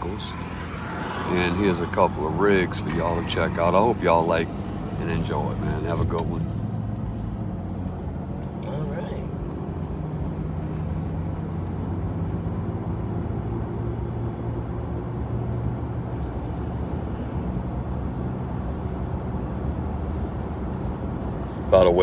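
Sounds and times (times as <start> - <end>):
diesel engine idling: 0.0 - 10.1.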